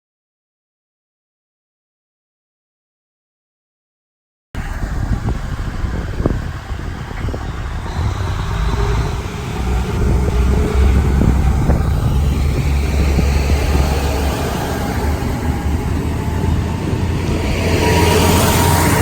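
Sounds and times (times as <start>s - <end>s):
diesel train approaching: 4.6s - 19.0s.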